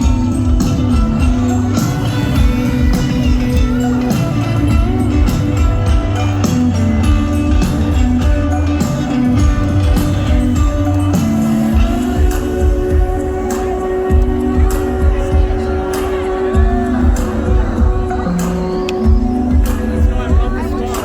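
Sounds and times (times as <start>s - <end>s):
deep bass line: 0.0s - 13.5s
drum beat: 0.0s - 21.0s
live band music: 0.0s - 21.0s
person singing: 0.0s - 21.0s.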